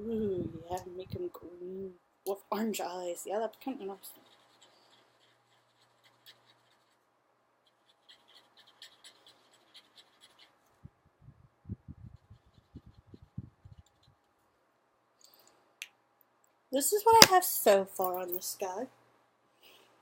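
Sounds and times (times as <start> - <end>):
scratching strokes of coloring: 2.5 - 10.8, 11.9 - 14.5.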